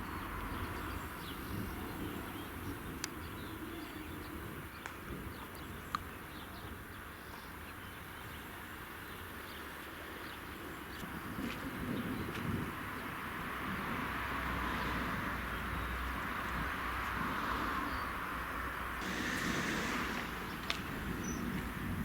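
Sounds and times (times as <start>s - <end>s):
bird chirps: 19.0s - 21.7s.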